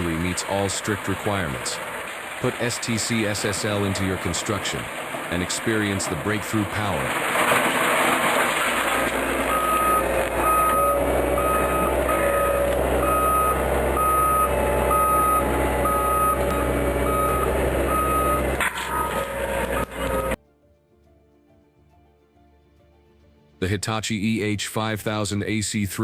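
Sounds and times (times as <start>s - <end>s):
heavy vehicle engine running: 0.0s - 20.4s
reversing alarm beeping: 9.5s - 20.4s.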